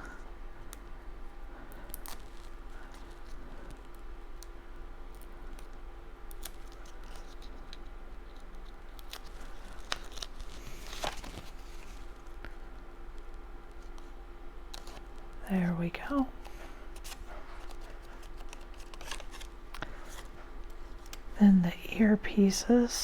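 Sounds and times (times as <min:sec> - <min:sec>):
low electrical hum: 0:00.0 - 0:23.0
paper rustle: 0:05.2 - 0:12.4, 0:16.4 - 0:21.3.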